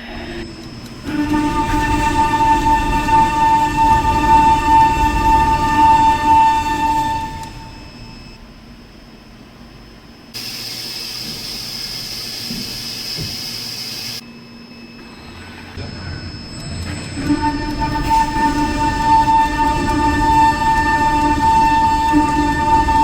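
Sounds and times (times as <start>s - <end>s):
high-pitched spindle tone: 0.0s - 8.4s, 15.0s - 23.0s
milling machine cutting hiss: 0.0s - 8.4s, 9.4s - 14.2s, 14.8s - 23.0s.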